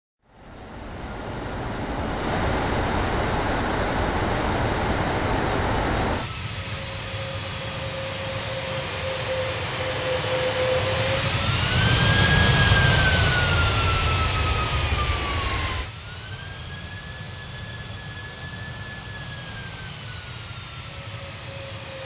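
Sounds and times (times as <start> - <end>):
jet engine whine: 0.2 - 22.0
airflow rushing in cabin: 0.3 - 15.9.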